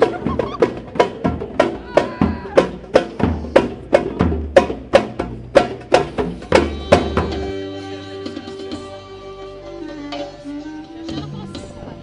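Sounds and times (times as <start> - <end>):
drum beating steadily: 0.0 - 9.1.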